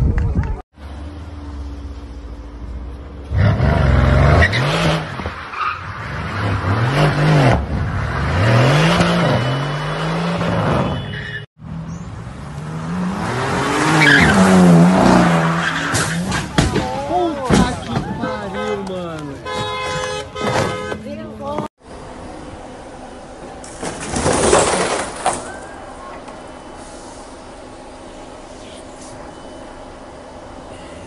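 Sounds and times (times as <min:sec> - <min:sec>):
tyres squealing and skidding: 0:03.3 - 0:12.0, 0:13.0 - 0:18.8, 0:23.8 - 0:26.3.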